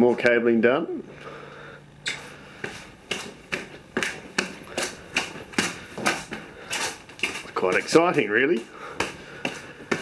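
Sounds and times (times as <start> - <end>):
footsteps walking: 2.0 - 10.0.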